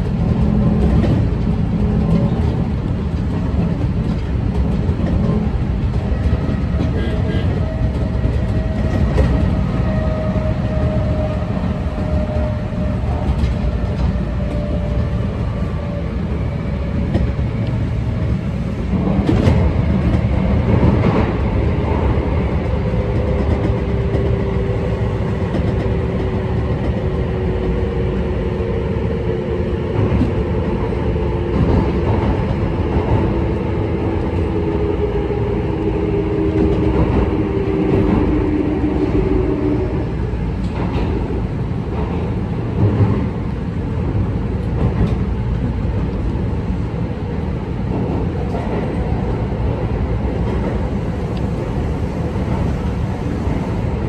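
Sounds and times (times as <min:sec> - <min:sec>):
rail-joint clacks: 0:00.0 - 0:11.0, 0:16.9 - 0:27.0, 0:40.5 - 0:46.3
wheels rumbling on rail: 0:00.0 - 0:54.0.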